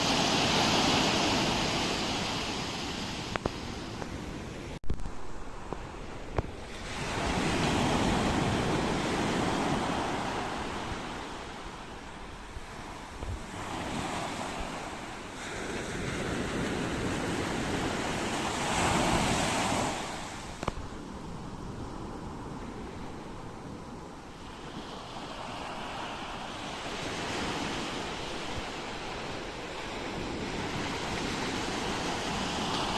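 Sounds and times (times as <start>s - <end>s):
ocean waves washing in: 0.0s - 32.9s.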